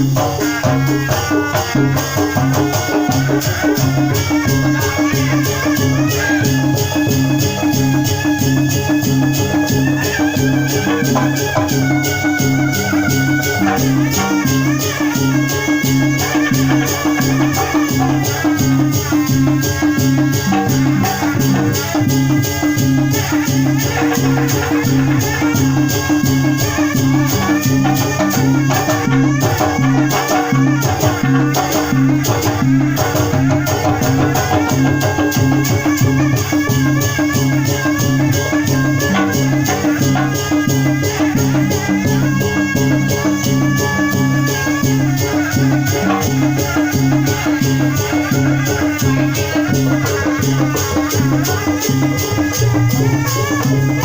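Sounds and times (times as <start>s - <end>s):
hand drums beating: 0.0s - 54.0s
rattling percussion: 0.0s - 54.0s.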